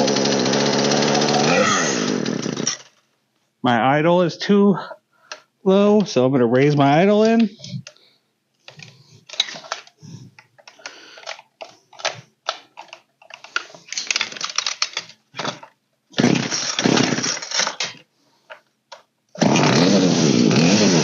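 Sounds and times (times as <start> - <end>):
chainsaw engine running: 0.0 - 2.9, 16.2 - 17.4, 19.4 - 21.0
loud rasping burst: 0.0 - 2.9, 16.1 - 17.7, 19.4 - 21.0
clicks and rattles from handling: 8.6 - 15.8, 16.7 - 19.1.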